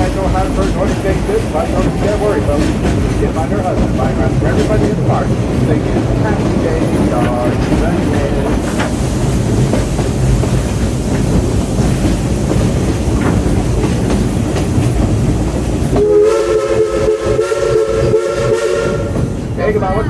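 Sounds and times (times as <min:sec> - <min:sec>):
steam train rumbling: 0:00.0 - 0:20.0
wheels clattering on rails: 0:00.0 - 0:20.0
steam whistle chord: 0:16.0 - 0:19.2.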